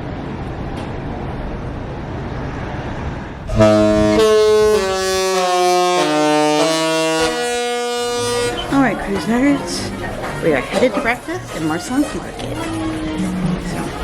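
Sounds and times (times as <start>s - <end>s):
ship horn playing a tune: 3.4s - 10.5s.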